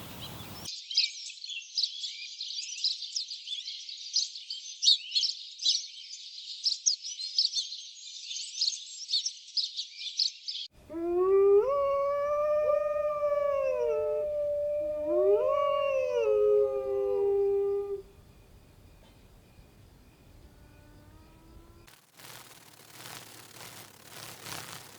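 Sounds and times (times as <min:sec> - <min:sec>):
dog howling: 0:10.8 - 0:18.2.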